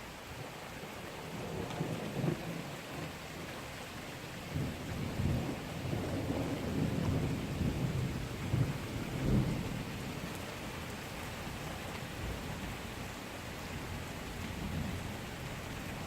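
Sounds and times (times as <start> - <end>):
heavy rain: 0.0 - 16.0
thunder rumbling: 4.5 - 10.2.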